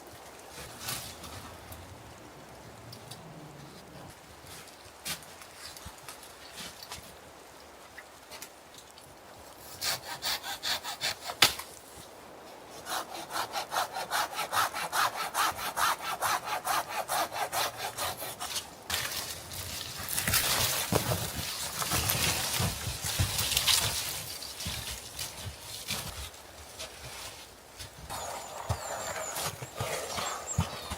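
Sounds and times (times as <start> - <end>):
hand saw cutting wood: 9.6 - 11.6, 12.8 - 18.7, 28.1 - 30.9.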